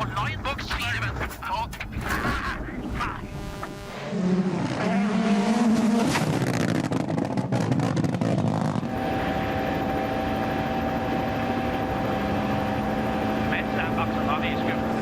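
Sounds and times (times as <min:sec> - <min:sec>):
rally car engine revving: 0:02.9 - 0:08.9
steady drone with held tone: 0:08.9 - 0:15.0.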